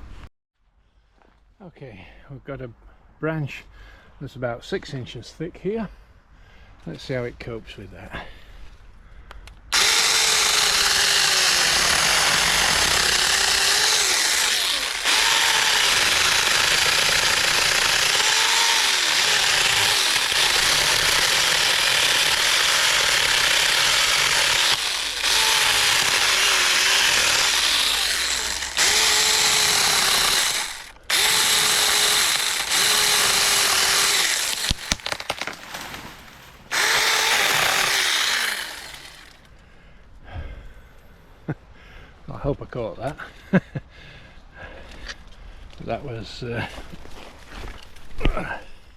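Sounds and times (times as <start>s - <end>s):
cordless chainsaw cutting branch: 9.7s - 39.5s.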